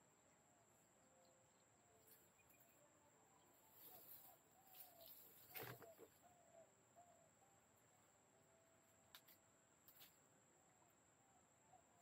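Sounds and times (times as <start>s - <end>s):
brief rustle: 3.8s - 6.2s
faint short bird calls: 3.8s - 8.0s.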